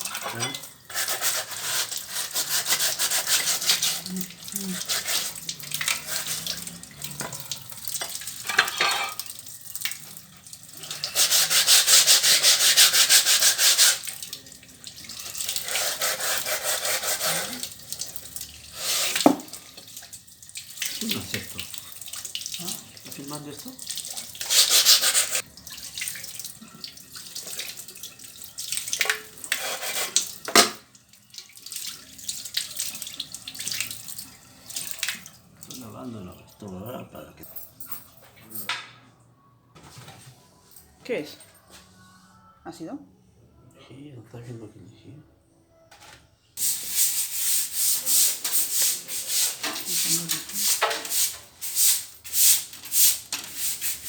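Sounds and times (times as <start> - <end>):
scrubbing tiles: 0.0 - 9.3, 10.8 - 14.2, 14.9 - 18.2, 24.0 - 25.4, 28.9 - 30.8, 46.6 - 54.0
water running and splashing: 0.0 - 35.9, 46.6 - 54.0.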